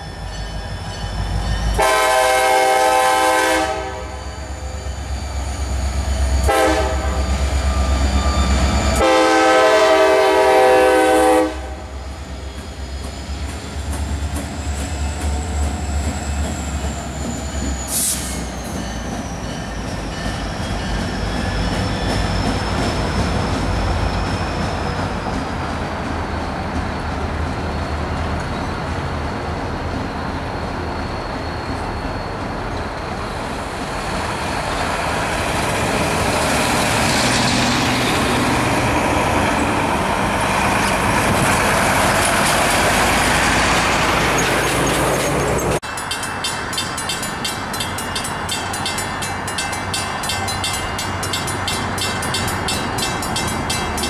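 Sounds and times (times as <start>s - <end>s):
train wheels rumbling on rail: 0.0s - 54.0s
faint high squeal: 4.0s - 6.5s, 7.1s - 9.1s, 29.8s - 34.8s.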